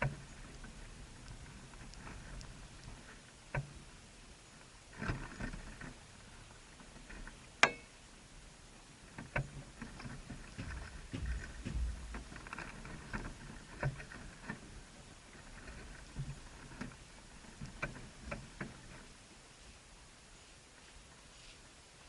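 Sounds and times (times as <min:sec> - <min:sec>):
taps and scrapes: 0:09.2 - 0:14.7.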